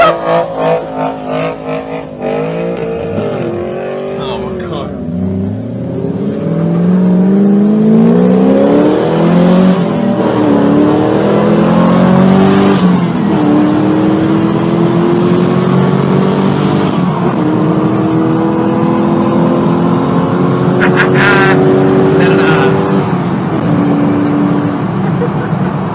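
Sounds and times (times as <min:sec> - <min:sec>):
car engine accelerating hard: 0:00.0 - 0:25.9.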